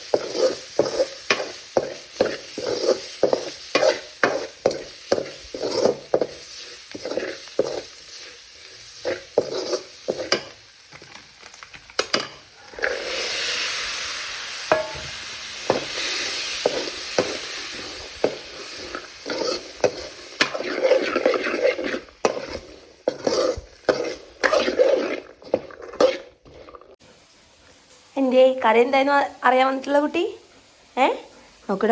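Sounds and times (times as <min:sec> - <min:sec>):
spoon scraping a frying pan: 0:00.0 - 0:11.2, 0:14.7 - 0:27.0
curry sizzling: 0:00.0 - 0:28.8.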